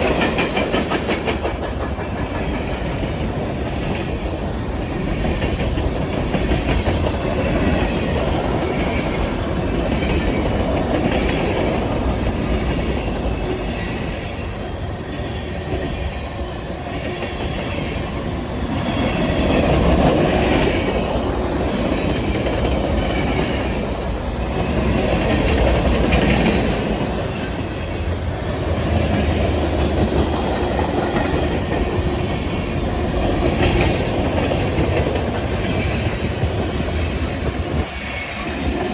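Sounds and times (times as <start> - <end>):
train wheels clicking on rails: 0.0 - 38.9
wheel squeals: 33.8 - 34.5.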